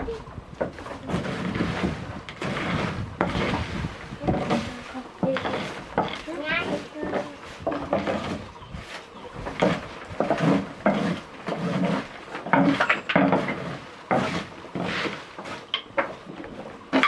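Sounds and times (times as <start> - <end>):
hard objects knocking and clattering: 0.5 - 8.5.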